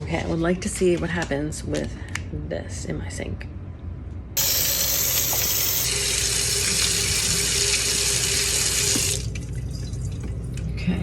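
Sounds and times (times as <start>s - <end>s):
faucet water running into sink: 4.4s - 10.6s.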